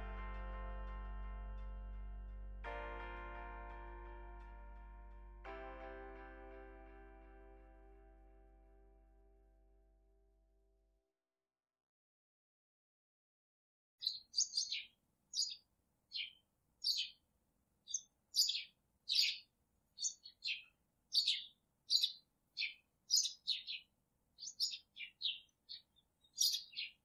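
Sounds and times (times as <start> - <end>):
bird chirping: 14.0 - 17.2, 17.8 - 27.0.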